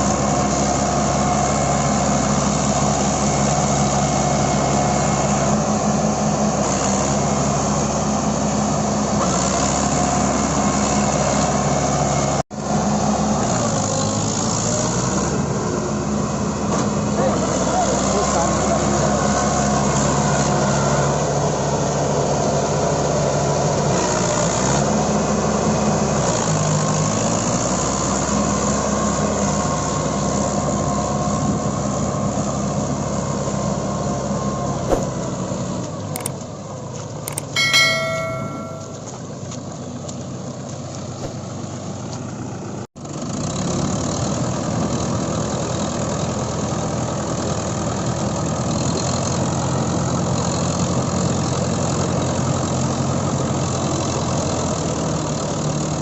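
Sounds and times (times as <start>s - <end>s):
short high-pitched tone: 37.3s - 39.1s.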